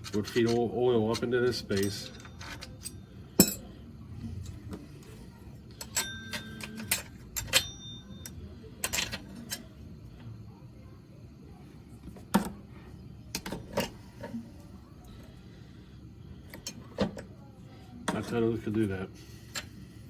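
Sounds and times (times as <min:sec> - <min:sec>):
small metal parts clicking: 0:00.0 - 0:03.7, 0:05.7 - 0:09.7.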